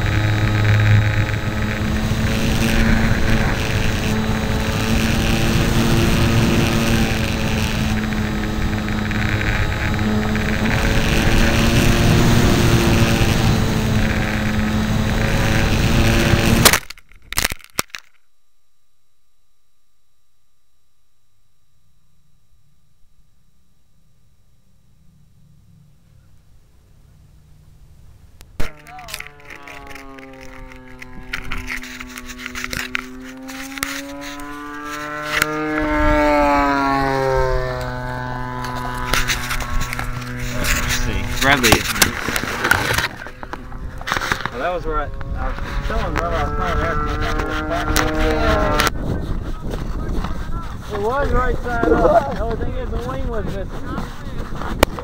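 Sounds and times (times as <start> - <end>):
model plane motor whine: 0.0 - 18.2, 28.5 - 49.0
faint hum: 0.0 - 53.1.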